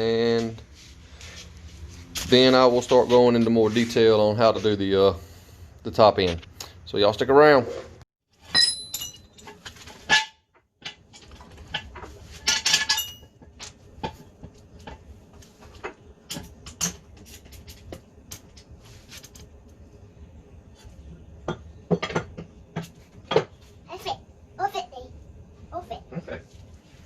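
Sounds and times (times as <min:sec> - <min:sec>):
metallic clinks and knocks: 0:08.5 - 0:09.8, 0:12.4 - 0:13.7.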